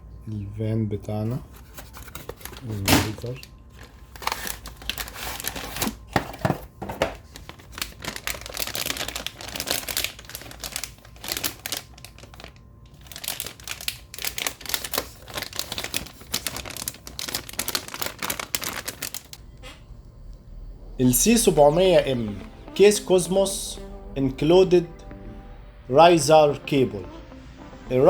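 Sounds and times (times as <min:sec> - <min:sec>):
plastic packaging crinkling: 0:01.6 - 0:19.4.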